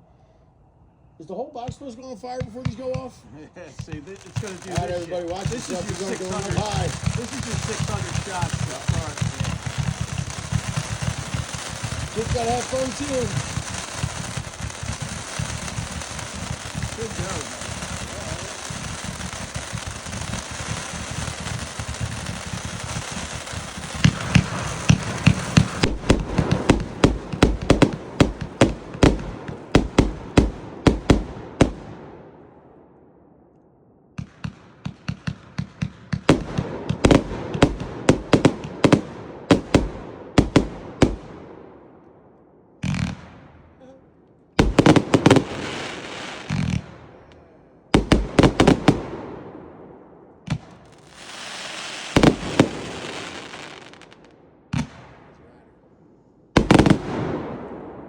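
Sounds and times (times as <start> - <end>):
firework crackling hiss: 3.8 - 31.2, 44.6 - 46.8, 50.8 - 54.2
firework shot volleys: 3.8 - 32.0, 34.2 - 41.3, 47.9 - 49.6, 50.4 - 55.2, 56.6 - 58.0.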